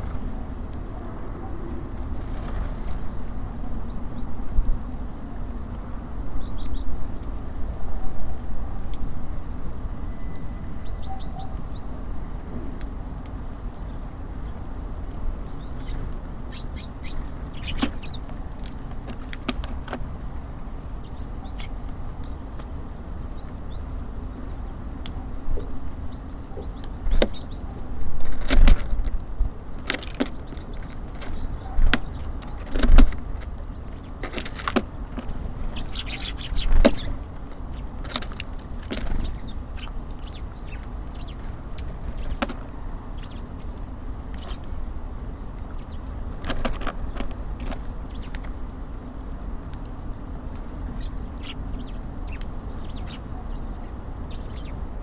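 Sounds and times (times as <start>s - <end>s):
city traffic rumble: 0.0s - 55.0s
songbirds chirping: 0.0s - 55.0s
birds pecking on wooden feeder: 13.1s - 54.8s.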